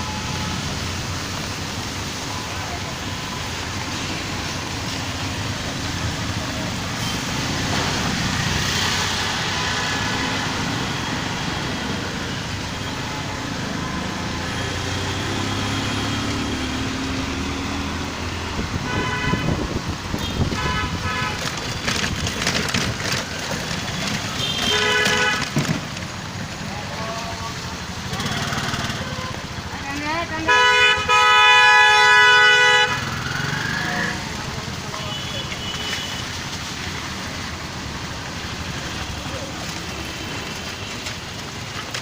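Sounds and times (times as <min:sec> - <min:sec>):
street traffic: 0:00.0 - 0:42.0
vehicle horns honking: 0:18.8 - 0:21.5, 0:24.3 - 0:25.6, 0:30.4 - 0:33.2.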